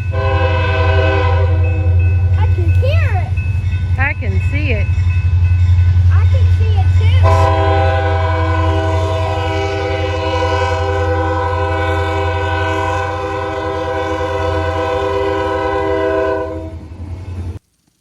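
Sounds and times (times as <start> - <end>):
train horn blast: 0.0 - 2.4, 7.2 - 16.9
passing train rumble: 0.0 - 17.6.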